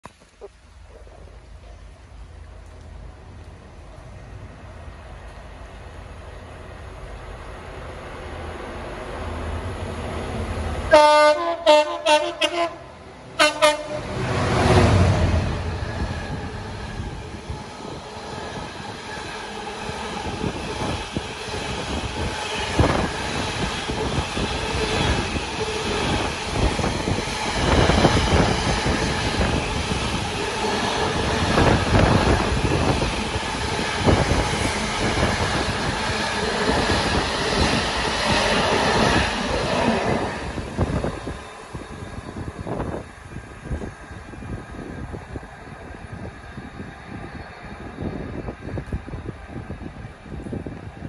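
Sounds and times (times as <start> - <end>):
freight train running past: 1.3 - 51.0.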